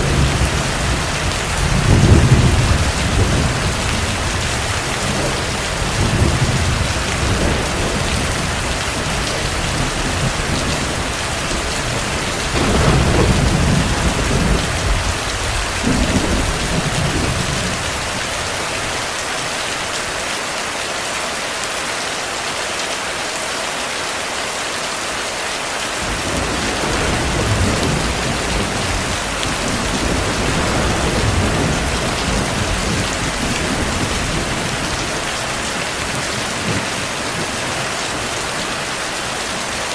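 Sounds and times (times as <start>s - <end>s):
distant thunder rolling: 0.0s - 18.9s, 26.0s - 39.0s
heavy rain falling: 0.0s - 39.9s.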